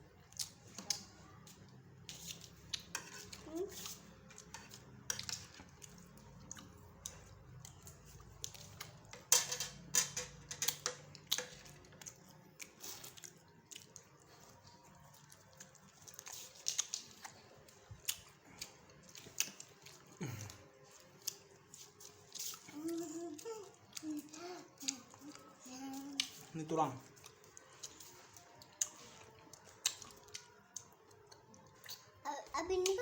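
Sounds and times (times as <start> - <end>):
person chewing food: 0.1 - 9.3, 10.5 - 32.2
wet smacks and clicks: 16.1 - 17.4.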